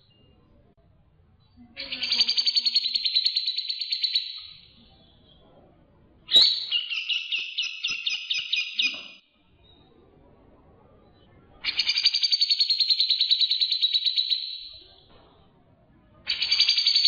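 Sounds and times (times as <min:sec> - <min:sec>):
bird pulsed chattering: 0:01.8 - 0:04.6.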